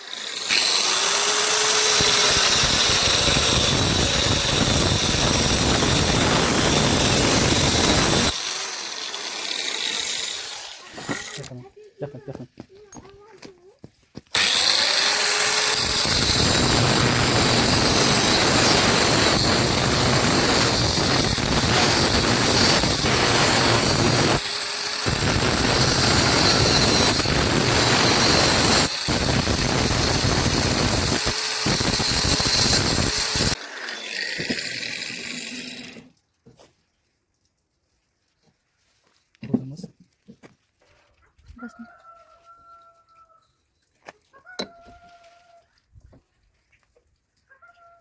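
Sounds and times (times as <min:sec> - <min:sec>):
power tool grinding steel pipe: 0:00.0 - 0:11.6, 0:14.3 - 0:36.1.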